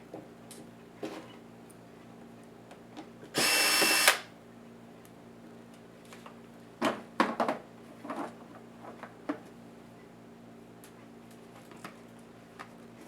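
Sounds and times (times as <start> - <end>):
electric screwdriver motor whining: 3.4 - 4.3.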